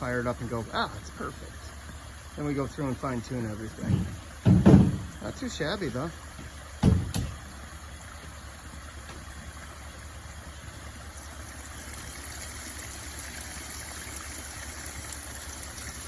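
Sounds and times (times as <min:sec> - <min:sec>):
water pouring down waterfall: 0:00.0 - 0:16.0.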